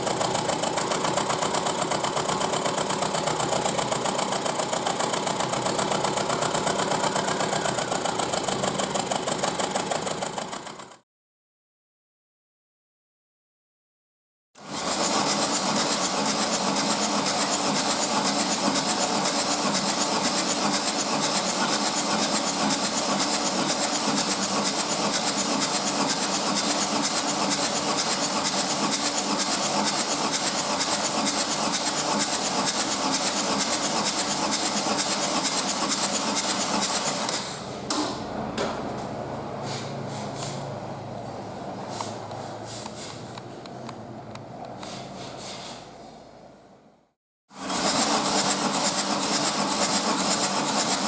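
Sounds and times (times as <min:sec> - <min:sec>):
diesel engine clattering: 0:00.0 - 0:11.0.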